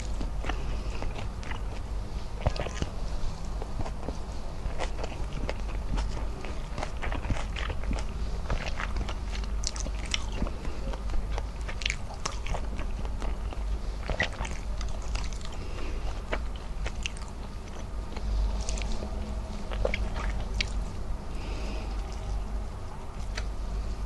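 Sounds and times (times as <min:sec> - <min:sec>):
mouth clicks and smacks: 0:00.0 - 0:20.8
person chewing food: 0:00.0 - 0:24.0.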